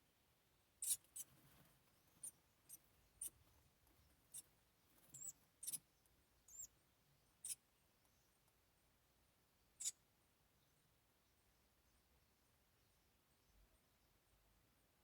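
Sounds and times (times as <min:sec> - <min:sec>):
wren high-pitched peeps: 0:00.8 - 0:08.4, 0:09.7 - 0:10.0.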